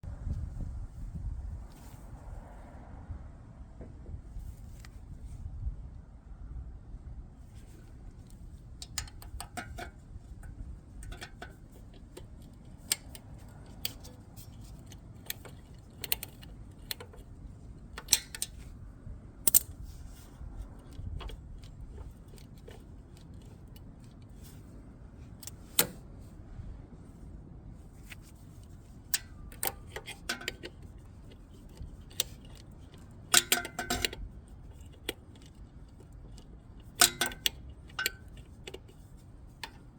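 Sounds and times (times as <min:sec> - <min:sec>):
low steady rumble: 0:00.0 - 0:39.9
hand tools clinking on metal: 0:18.0 - 0:18.7, 0:29.2 - 0:39.0.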